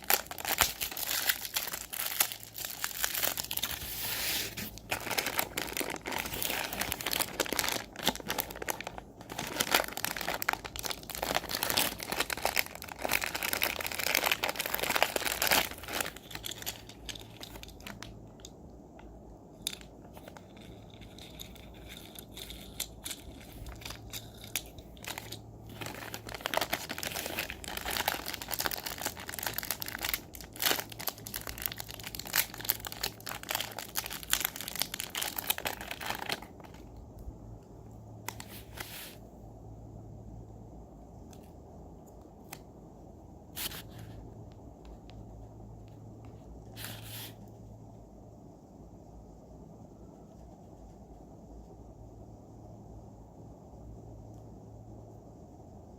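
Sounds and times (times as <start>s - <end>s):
plastic packaging crinkling: 0.0s - 18.6s, 19.5s - 37.0s.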